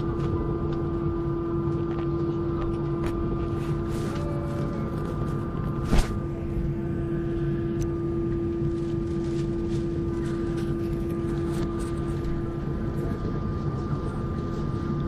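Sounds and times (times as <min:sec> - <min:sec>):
airliner cabin hum: 0:00.0 - 0:15.0.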